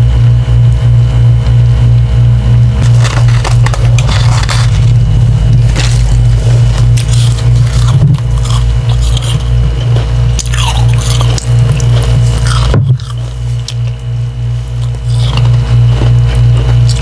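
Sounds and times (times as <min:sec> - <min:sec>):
loud steady low hum: 0:00.0 - 0:17.0
wet ice crunching when chewed: 0:02.8 - 0:17.0.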